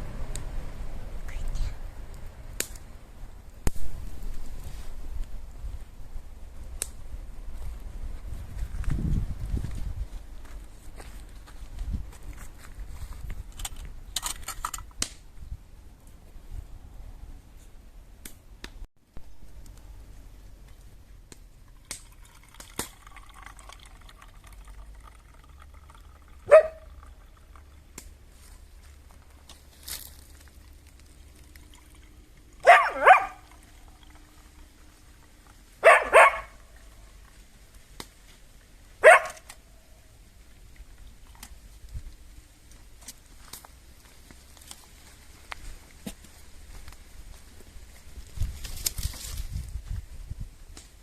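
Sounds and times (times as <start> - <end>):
dog barking: 26.5 - 26.9, 32.6 - 33.5, 35.8 - 36.6, 39.0 - 39.5.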